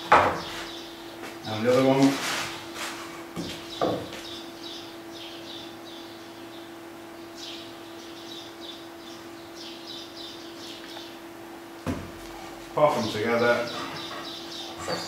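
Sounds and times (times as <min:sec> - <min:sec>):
small bird chirping: 0:03.7 - 0:11.2, 0:13.6 - 0:15.0.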